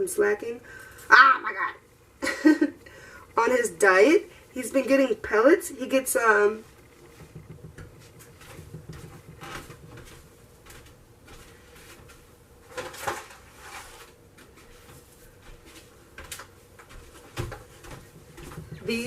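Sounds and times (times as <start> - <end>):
light knocks and rustles: 6.9 - 19.0.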